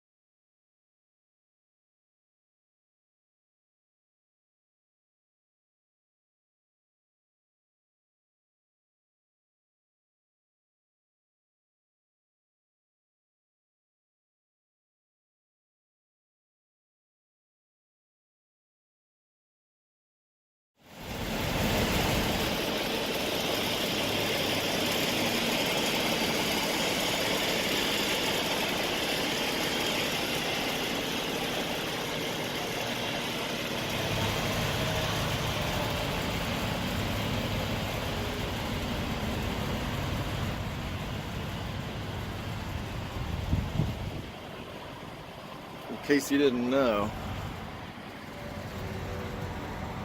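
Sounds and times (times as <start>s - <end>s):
constant rushing noise: 20.9s - 50.0s
diesel engine running: 20.9s - 50.0s.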